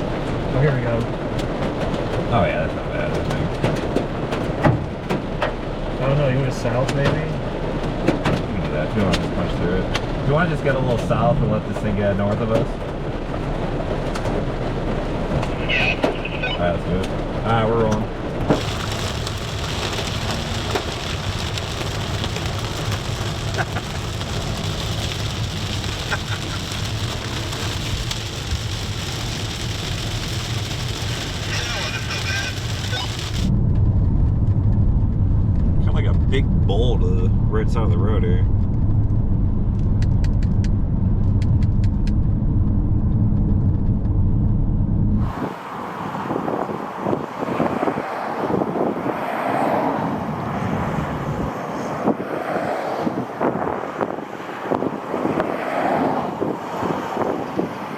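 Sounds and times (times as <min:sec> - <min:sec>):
heavy rain on a vehicle: 0:00.0 - 0:33.5, 0:45.2 - 0:50.7, 0:53.2 - 0:57.9
engine and road rumble: 0:00.0 - 0:57.9
raindrop ticks: 0:00.2 - 0:05.6, 0:06.8 - 0:33.5
wind buffeting microphone: 0:38.5 - 0:57.9.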